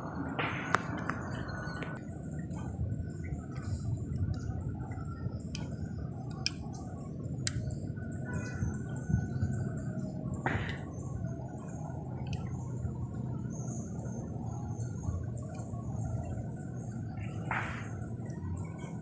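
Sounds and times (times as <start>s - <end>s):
steady low rumble: 0.0s - 19.0s
sharp clicks: 3.5s - 6.7s, 7.4s - 7.8s.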